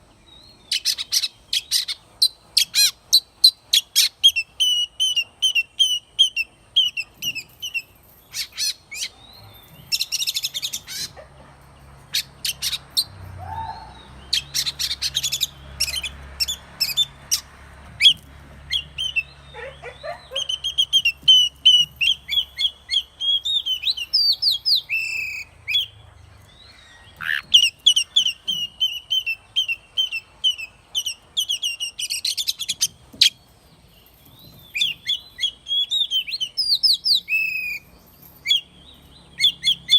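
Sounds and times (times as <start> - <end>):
bird singing whistled notes: 0.3 - 11.1, 18.0 - 26.0, 26.6 - 33.4, 34.0 - 39.9
bird harsh chattering: 10.0 - 11.3, 27.2 - 32.9.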